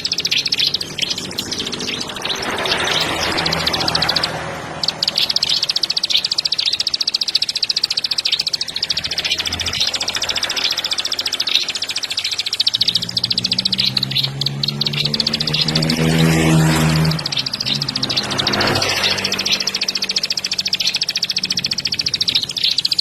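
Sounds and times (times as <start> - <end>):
low hum: 0.0 - 20.7
bird singing rapid high notes: 0.0 - 23.0.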